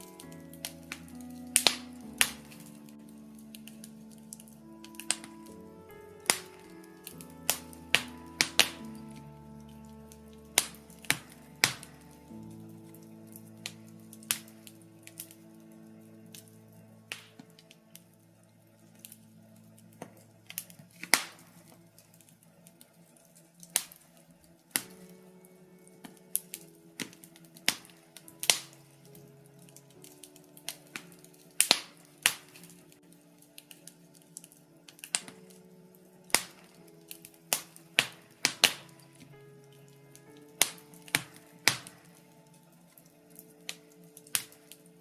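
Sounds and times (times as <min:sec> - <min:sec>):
soft sustained music: 0:00.0 - 0:45.0
wood fire crackling: 0:00.0 - 0:45.0.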